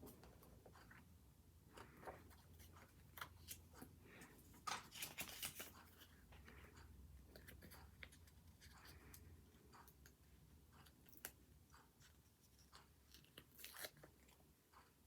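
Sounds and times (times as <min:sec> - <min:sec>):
paper rustling: 0:04.5 - 0:06.1.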